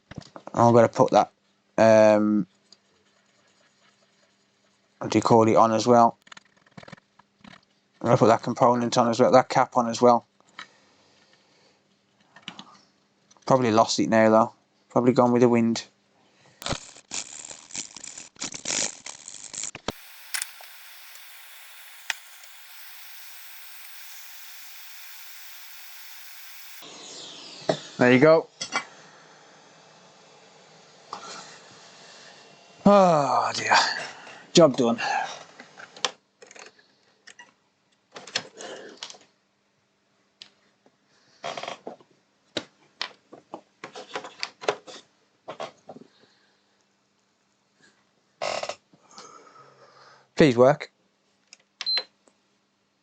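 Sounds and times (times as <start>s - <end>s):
faint steady hum: 19.9s - 26.8s
hot air blower hissing: 19.9s - 26.8s
sharp click: 19.9s - 26.8s.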